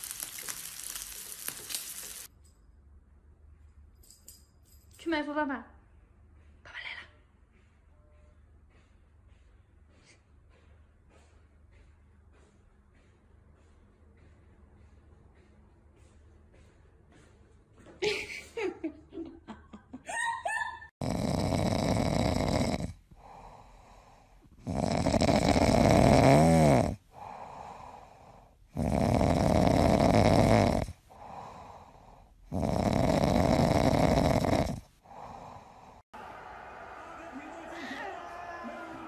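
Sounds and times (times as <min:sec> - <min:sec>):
loud snoring: 0:21.0 - 0:28.1, 0:28.7 - 0:36.0
quiet out-breaths: 0:22.9 - 0:24.6, 0:27.0 - 0:28.7, 0:30.9 - 0:32.5, 0:34.8 - 0:36.1.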